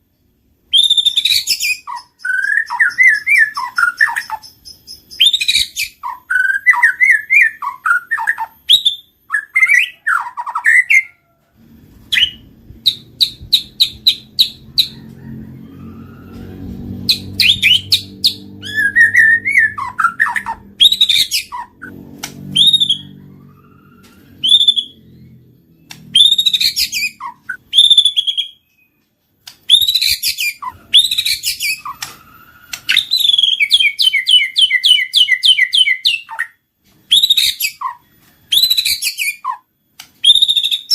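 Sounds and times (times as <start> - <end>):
bird singing whistled phrases: 0.7 - 11.1, 12.1 - 14.6, 17.1 - 21.9, 22.5 - 23.3, 24.1 - 25.4, 26.1 - 29.0, 29.7 - 39.6, 40.2 - 40.9
faint low hum: 6.0 - 29.8.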